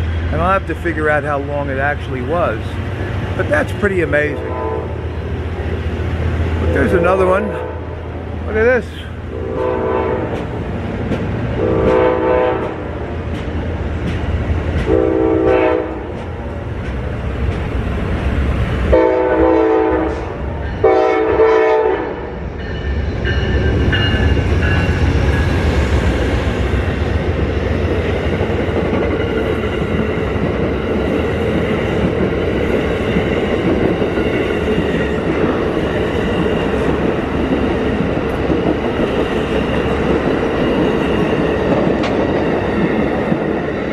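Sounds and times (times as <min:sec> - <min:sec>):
train cars rumbling past: 0:00.0 - 0:43.9
train horn blasts: 0:04.3 - 0:05.0, 0:09.3 - 0:10.4, 0:11.6 - 0:12.9, 0:14.9 - 0:16.1, 0:18.9 - 0:22.3
rail clatter: 0:08.5 - 0:18.4, 0:22.6 - 0:43.9.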